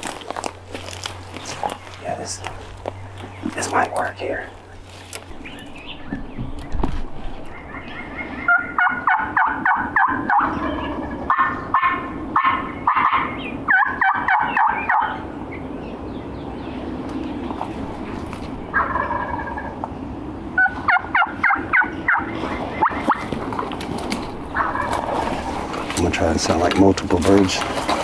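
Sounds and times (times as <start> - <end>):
turkey gobbling: 7.5 - 15.2, 18.7 - 19.9, 20.6 - 28.0.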